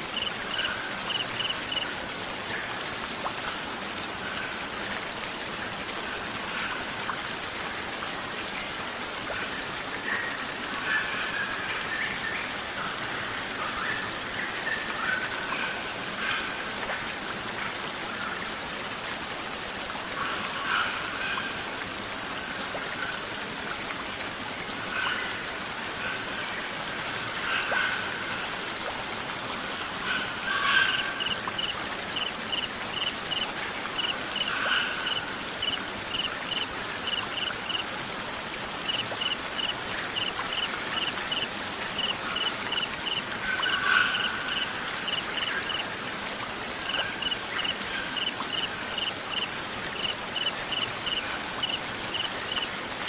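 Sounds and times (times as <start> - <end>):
rain-like nature hiss: 0.0 - 53.0
songbird chirps and trills: 0.1 - 1.9, 30.6 - 37.8, 38.8 - 45.8, 46.9 - 52.7.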